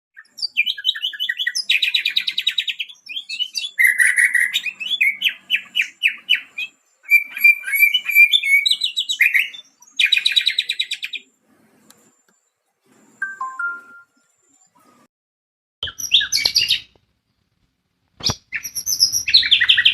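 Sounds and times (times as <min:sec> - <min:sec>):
bird singing trills and whistles: 0:00.2 - 0:11.3, 0:15.8 - 0:17.0, 0:18.2 - 0:19.9.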